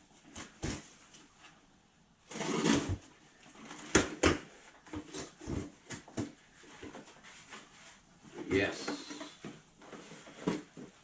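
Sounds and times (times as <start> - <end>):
cardboard box scraping and rustling: 2.3 - 3.0.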